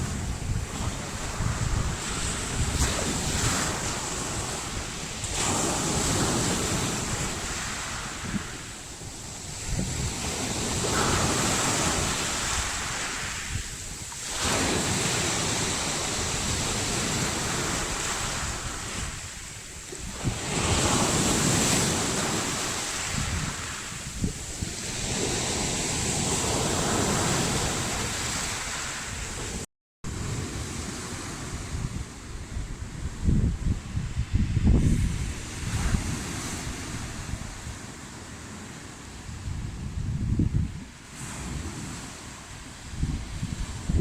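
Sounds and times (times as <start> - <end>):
stormy sea waves: 0.0 - 44.0
wind buffeting microphone: 0.0 - 44.0.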